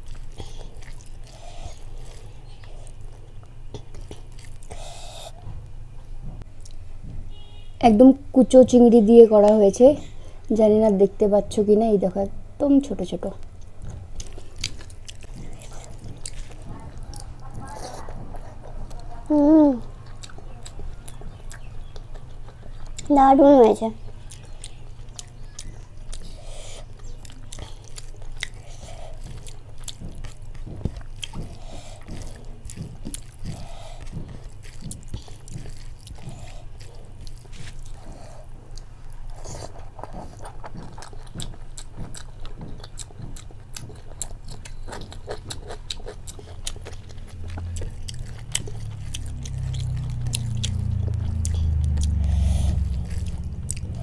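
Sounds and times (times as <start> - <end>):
wet chewing with mouth clicks: 0.0 - 5.6, 13.3 - 54.0
steady low hum: 0.0 - 54.0
low rumble: 46.8 - 54.0.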